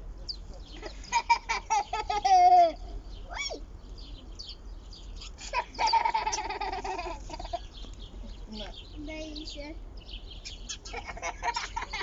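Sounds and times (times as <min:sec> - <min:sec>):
birds chirping: 0:00.0 - 0:12.0
child squealing with laughter: 0:01.2 - 0:03.6.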